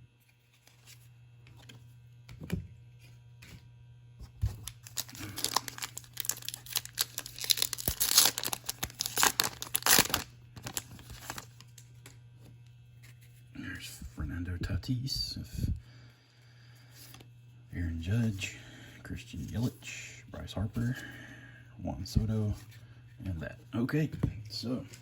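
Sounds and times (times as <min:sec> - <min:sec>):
wrapper tearing and crinkling: 0:04.5 - 0:11.8.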